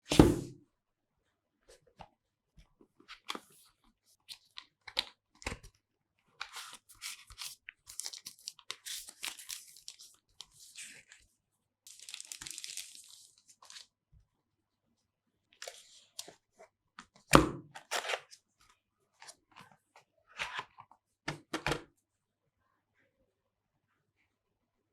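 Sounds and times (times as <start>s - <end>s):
packaging tearing and crinkling: 11.9s - 13.8s.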